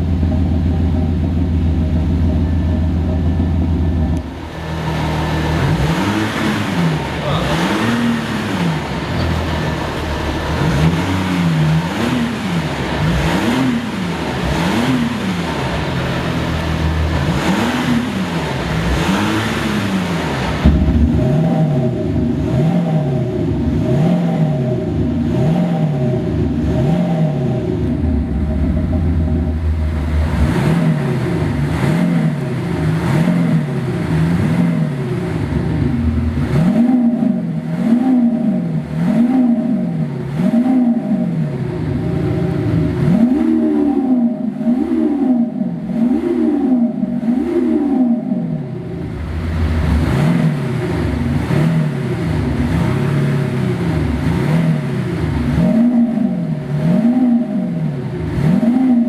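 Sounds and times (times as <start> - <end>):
synthetic engine note revving: 0.0 - 34.9.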